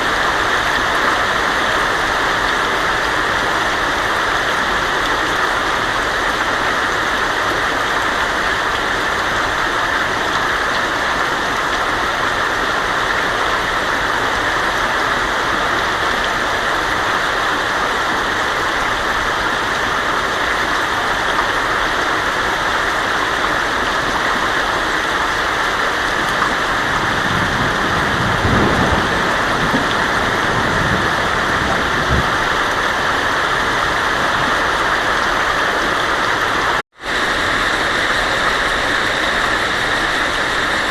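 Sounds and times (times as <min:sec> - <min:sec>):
heavy rain on a tin roof: 0:00.0 - 0:40.9
thunder rumbling: 0:26.2 - 0:34.6.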